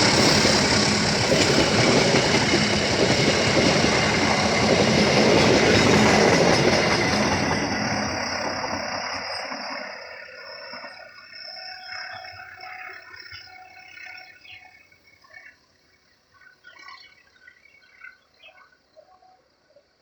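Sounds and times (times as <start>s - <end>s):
train passing: 0.0s - 15.2s.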